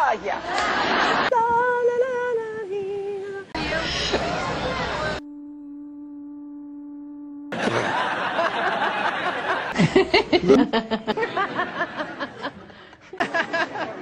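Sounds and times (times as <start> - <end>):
steady held tone: 3.6 - 8.8
woman laughing: 7.5 - 14.0.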